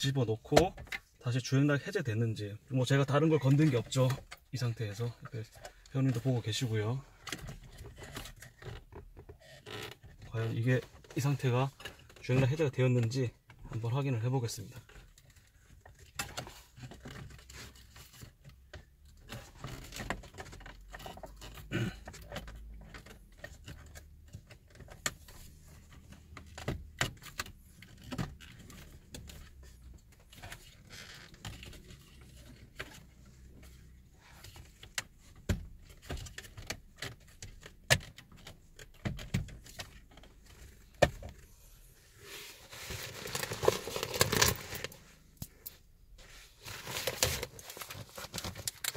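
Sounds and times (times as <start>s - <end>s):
rustling clatter: 27.5s - 45.4s, 46.2s - 48.9s.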